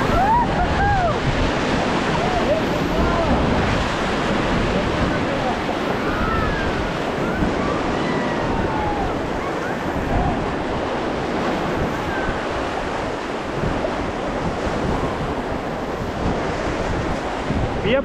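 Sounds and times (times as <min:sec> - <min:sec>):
faint cries: 0:00.0 - 0:01.2, 0:05.9 - 0:10.6
whitewater rushing and crashing: 0:00.0 - 0:18.0
wind buffeting microphone: 0:00.0 - 0:18.0.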